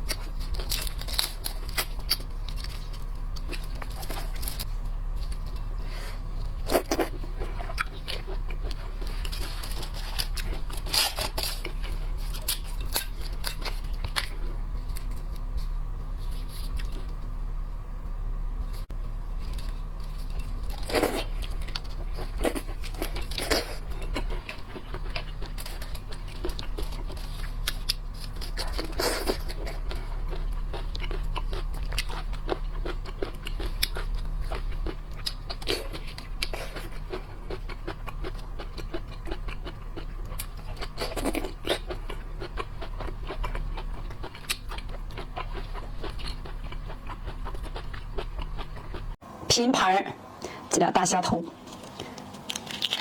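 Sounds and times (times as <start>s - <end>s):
chewing and crunching shellfish: 0.0s - 17.3s, 18.7s - 49.2s, 51.6s - 53.0s
low hum: 0.0s - 49.6s.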